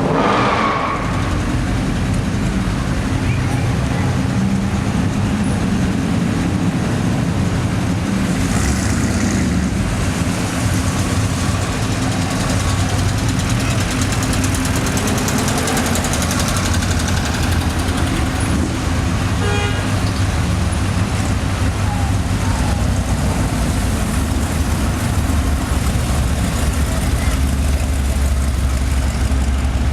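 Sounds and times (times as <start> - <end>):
car engines driving past: 0.0 - 29.9
car horn toot: 19.4 - 19.9.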